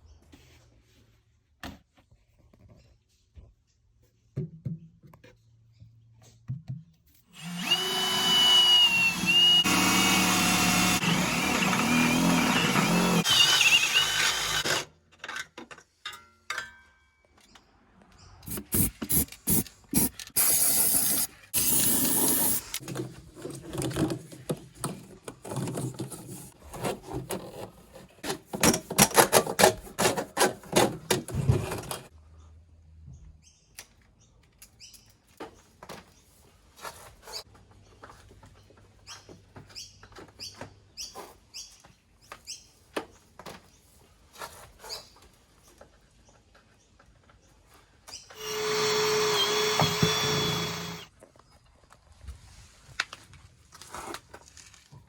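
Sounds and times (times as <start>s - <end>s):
rapid tool sounds and knocks: 6.6s - 14.9s, 18.5s - 32.1s, 48.3s - 51.1s
power drill running: 7.4s - 14.9s, 20.0s - 22.8s, 48.4s - 51.1s.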